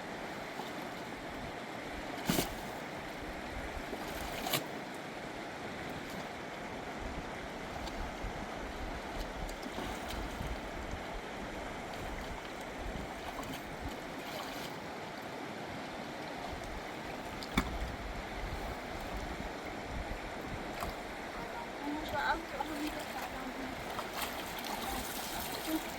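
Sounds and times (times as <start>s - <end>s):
river water rushing: 8.5s - 25.9s.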